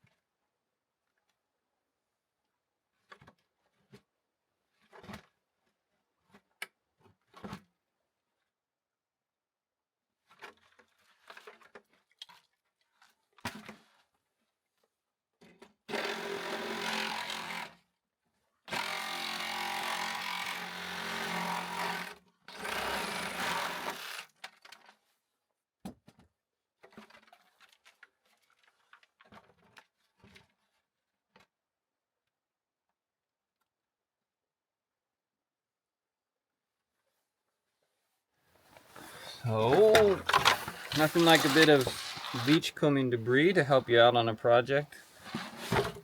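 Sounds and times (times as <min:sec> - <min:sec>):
power tool running: 0:15.9 - 0:17.7, 0:18.7 - 0:24.2, 0:39.0 - 0:42.6
handling knocks and rattles: 0:38.8 - 0:42.8.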